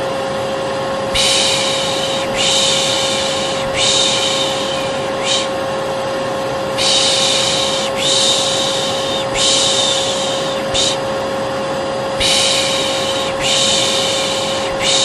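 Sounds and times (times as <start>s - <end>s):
vacuum cleaner running: 0.0s - 15.0s
person shushing: 1.1s - 5.6s, 6.8s - 11.1s, 12.2s - 15.0s.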